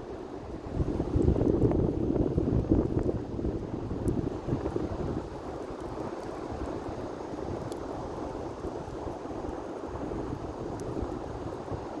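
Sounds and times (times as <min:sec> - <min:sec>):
bonfire burning: 0:00.0 - 0:12.0
fire popping: 0:00.0 - 0:12.0
wind buffeting microphone: 0:00.4 - 0:09.2.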